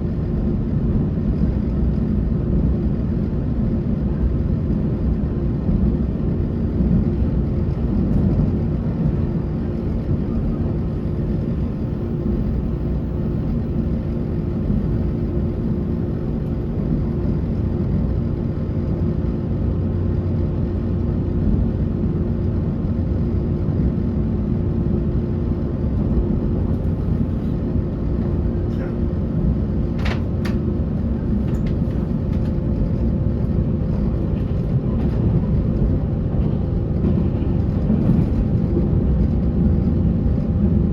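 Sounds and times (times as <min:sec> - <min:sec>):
train wheels rumbling: 0:26.0 - 0:40.9.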